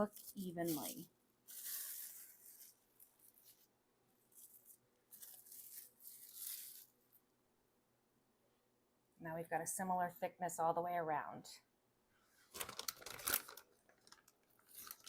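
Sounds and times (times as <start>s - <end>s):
plastic wrap crinkling: 0.0s - 7.2s, 12.5s - 15.0s.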